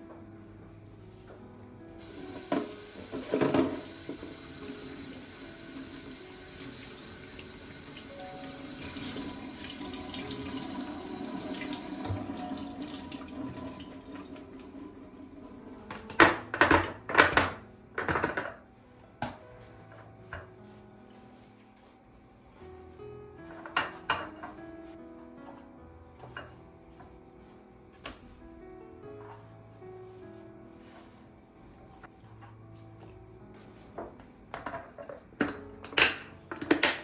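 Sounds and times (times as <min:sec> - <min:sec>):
tap running into sink: 0:02.0 - 0:14.7.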